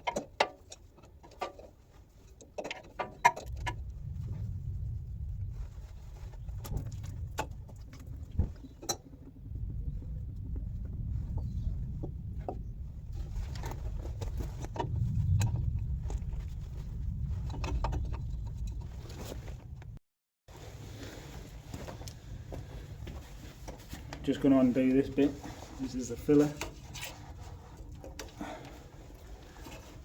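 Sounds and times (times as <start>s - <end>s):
steady low rumble: 3.5s - 20.0s.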